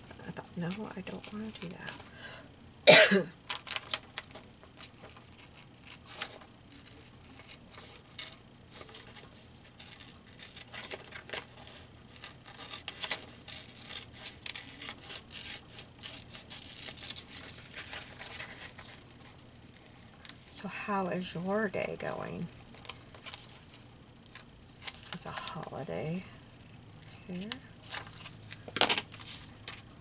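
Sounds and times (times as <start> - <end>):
paper rustling and crinkling: 3.4 - 20.5, 22.5 - 25.7, 27.0 - 30.0.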